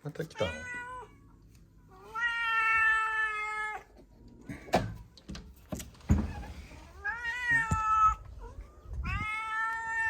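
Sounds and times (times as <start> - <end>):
cat meowing: 0.4 - 3.9, 6.8 - 10.0.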